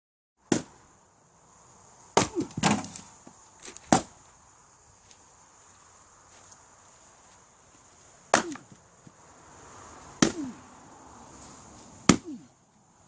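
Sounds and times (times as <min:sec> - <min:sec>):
axe chopping firewood: 0:00.5 - 0:00.8, 0:02.1 - 0:03.1, 0:03.8 - 0:04.1, 0:08.3 - 0:08.8, 0:10.2 - 0:10.6, 0:12.0 - 0:12.5
split wood pieces clattering: 0:02.5 - 0:04.0.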